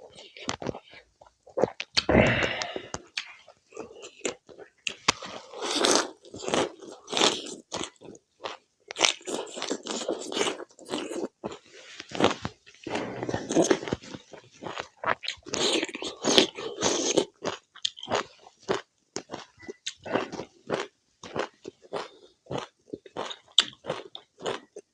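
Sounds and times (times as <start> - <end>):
person chewing and crunching food: 0.0 - 24.9.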